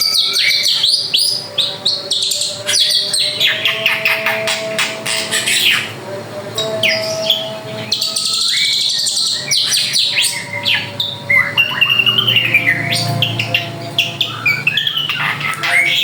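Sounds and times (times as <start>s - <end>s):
bird singing whistled notes: 6.6s - 16.0s.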